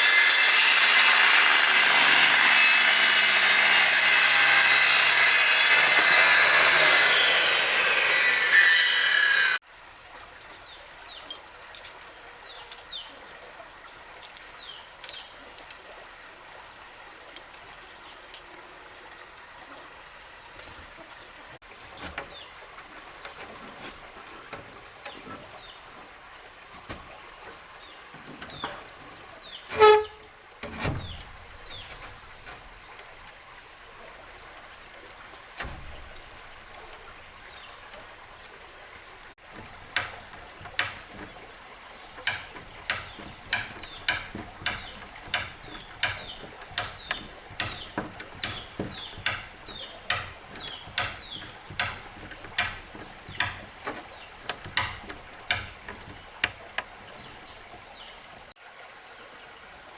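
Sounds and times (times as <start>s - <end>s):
hand tool striking wood: 29.7s - 32.3s, 39.4s - 57.7s
loud ringing knock: 42.3s - 56.6s.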